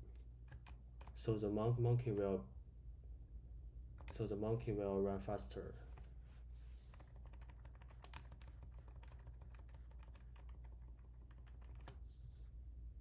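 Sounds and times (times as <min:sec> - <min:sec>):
steady low hum: 0:00.0 - 0:13.0
keyboard keys clicking: 0:07.0 - 0:12.0.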